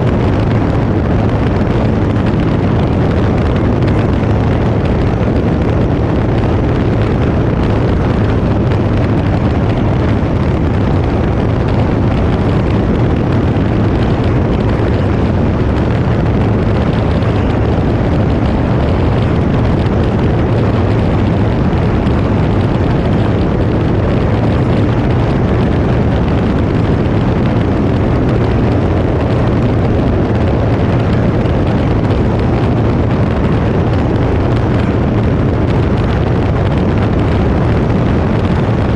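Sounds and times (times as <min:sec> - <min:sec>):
aircraft engine drone: 0:00.0 - 0:38.9.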